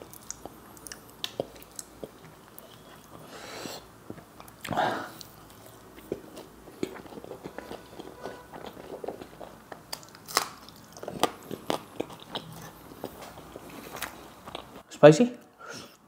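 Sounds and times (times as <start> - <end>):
chewing food: 0.0 - 3.3, 4.0 - 14.9.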